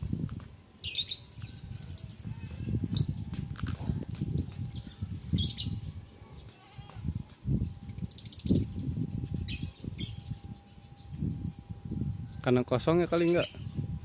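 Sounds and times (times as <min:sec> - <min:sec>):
low rumbling noise: 0:00.0 - 0:14.0
lovebirds chirping: 0:00.8 - 0:03.3, 0:04.4 - 0:11.2, 0:13.0 - 0:13.9.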